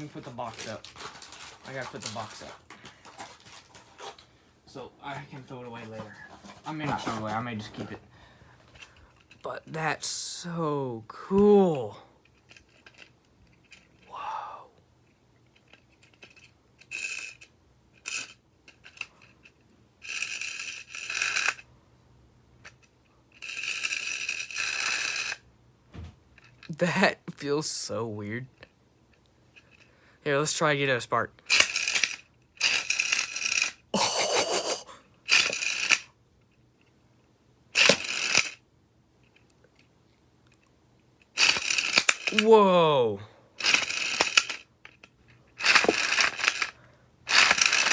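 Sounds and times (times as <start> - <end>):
plastic toy parts clicking: 0.0 - 3.3, 12.2 - 14.0, 15.4 - 21.6, 22.6 - 25.4, 31.4 - 33.9, 35.3 - 36.1, 37.8 - 38.6, 40.5 - 42.6, 43.6 - 47.9
spinning top whirring: 15.6 - 21.7, 22.6 - 25.4, 31.5 - 36.1, 37.8 - 38.6, 41.3 - 47.9
launcher string pull whir: 31.5 - 33.8, 35.3 - 36.1, 37.8 - 38.6, 41.3 - 42.6, 43.6 - 45.0, 45.6 - 47.9.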